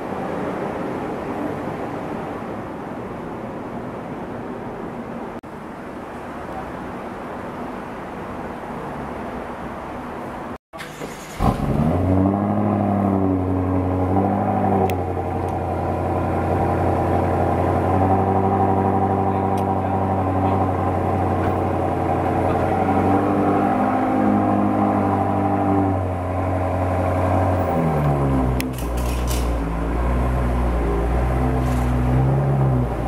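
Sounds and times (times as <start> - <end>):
car engine starting and idling: 10.8 - 33.0.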